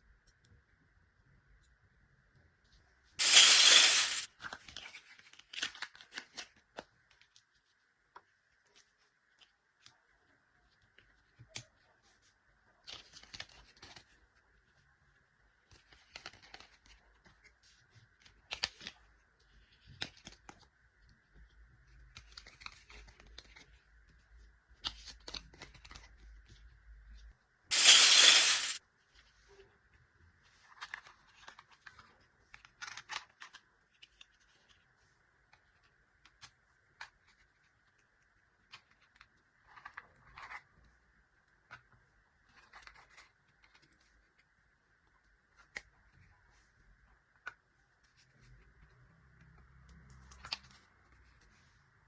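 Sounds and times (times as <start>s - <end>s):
packaging being torn: 3.2s - 4.3s, 27.7s - 28.8s.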